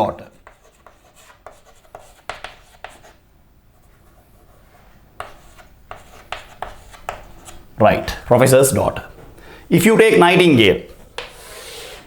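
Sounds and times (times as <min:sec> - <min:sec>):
pen scratching on paper: 0:00.4 - 0:03.2, 0:03.8 - 0:07.7.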